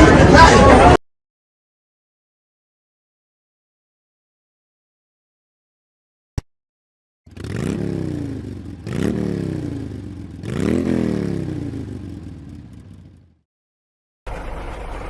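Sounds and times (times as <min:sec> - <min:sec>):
vehicle engine revving: 0:07.3 - 0:13.4.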